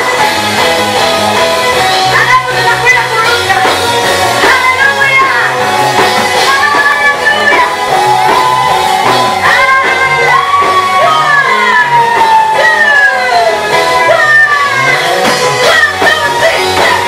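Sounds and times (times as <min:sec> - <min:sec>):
band accompaniment: 0:00.0 - 0:17.0
bass line: 0:00.0 - 0:17.0.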